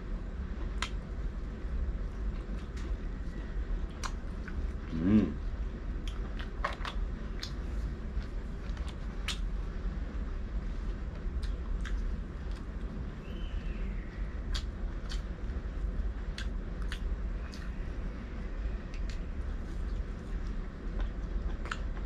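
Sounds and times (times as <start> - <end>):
steady low hum: 0.0 - 22.0
hummed voice rising in pitch: 4.8 - 5.5
crunchy biting and chewing: 14.4 - 15.4.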